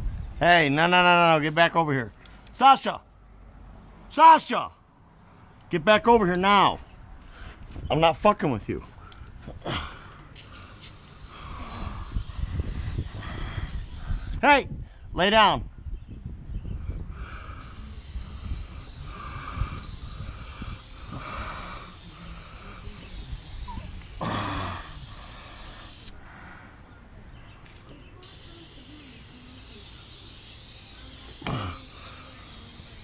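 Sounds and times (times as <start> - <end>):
wind rumble on microphone: 0.0 - 0.4, 11.6 - 21.9
aerosol spray can hissing: 10.4 - 14.4, 17.6 - 26.2, 28.2 - 33.0.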